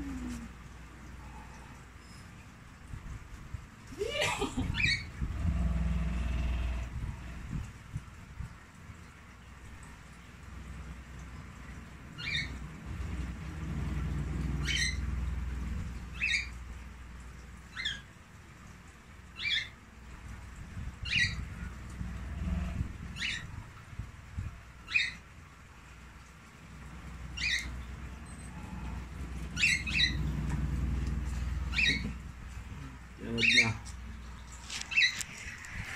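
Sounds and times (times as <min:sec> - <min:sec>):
low rumble: 0:04.6 - 0:08.7, 0:09.8 - 0:17.8, 0:20.1 - 0:24.9, 0:26.6 - 0:35.9.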